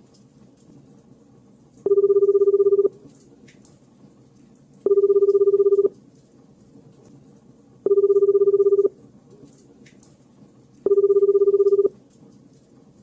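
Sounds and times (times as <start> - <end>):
warbling telephone ringback tone: 1.9 - 3.0, 4.9 - 5.9, 7.9 - 9.0, 10.9 - 12.0.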